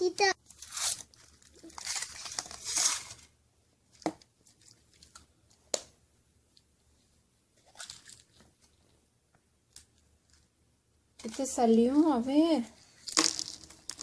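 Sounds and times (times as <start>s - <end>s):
foil wrapper crinkling: 0.5s - 3.3s.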